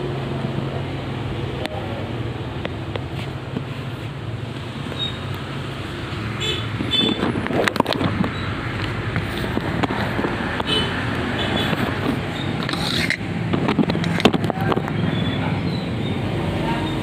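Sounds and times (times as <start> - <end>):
clicks and knocks: 6.7 - 15.0.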